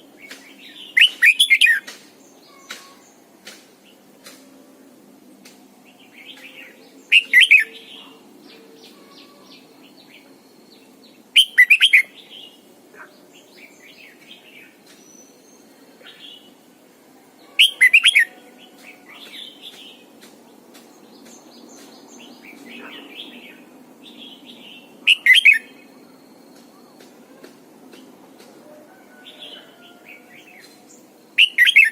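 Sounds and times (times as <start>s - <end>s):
bird warbling song: 0.2s - 3.2s, 6.0s - 16.5s, 17.4s - 20.0s, 21.2s - 25.9s, 29.2s - 31.9s.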